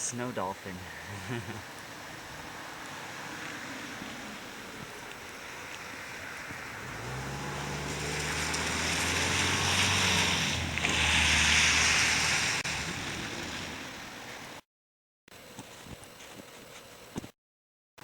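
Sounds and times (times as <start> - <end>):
vehicle engine hum: 0.0 - 14.6
tyre hiss on wet road: 1.3 - 14.6.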